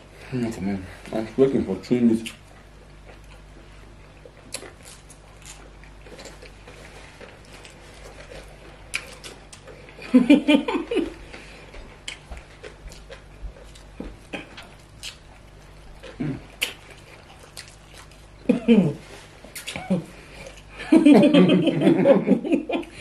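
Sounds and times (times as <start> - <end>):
people chewing food: 0.0 - 23.0
wet mouth clicks: 14.3 - 15.2, 16.1 - 16.9, 19.5 - 19.9.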